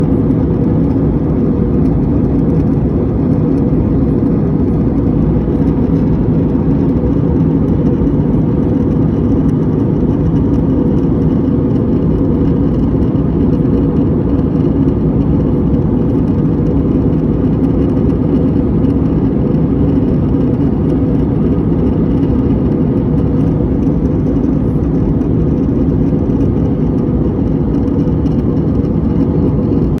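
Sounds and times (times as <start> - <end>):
airplane cabin drone: 0.0 - 30.0.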